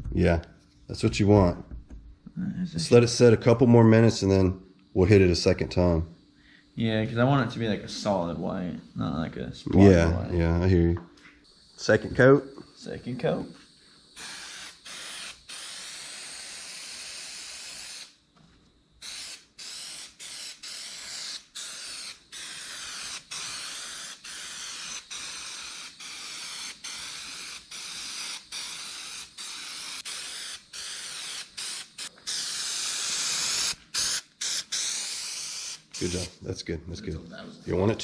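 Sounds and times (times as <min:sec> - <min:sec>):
aerosol spray can hissing: 0:11.4 - 0:36.4.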